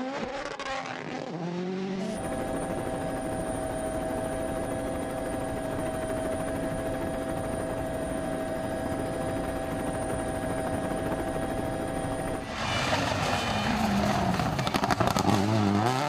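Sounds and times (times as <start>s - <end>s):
loud noisy burst: 12.4s - 15.7s.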